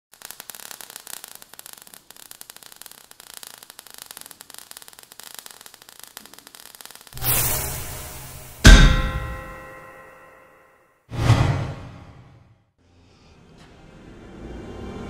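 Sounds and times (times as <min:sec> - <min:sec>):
crackling static clicks: 0:00.1 - 0:07.2.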